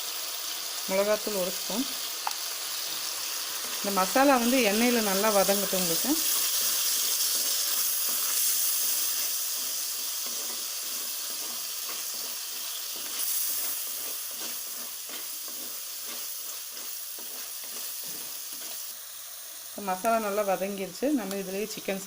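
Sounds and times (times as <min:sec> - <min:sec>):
masala sizzling in hot oil: 0:00.0 - 0:22.0
spoon stirring against pan: 0:02.3 - 0:18.9.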